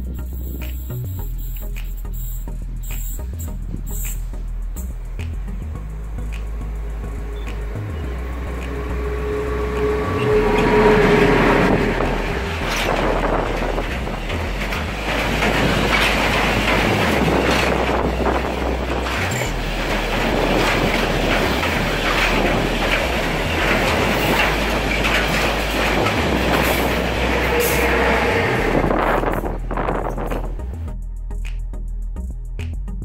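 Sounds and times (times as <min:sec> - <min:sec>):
freight train rumbling past: 0:00.0 - 0:31.0
electric locomotive whine: 0:05.0 - 0:30.8
wind buffeting microphone: 0:07.4 - 0:30.7.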